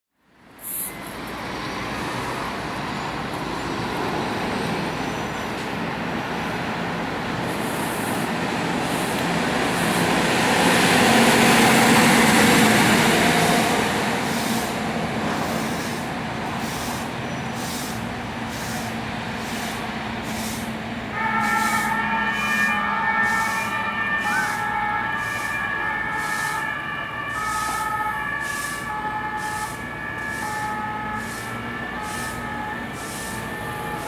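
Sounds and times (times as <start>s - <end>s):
fire truck engine running: 8.5s - 34.0s.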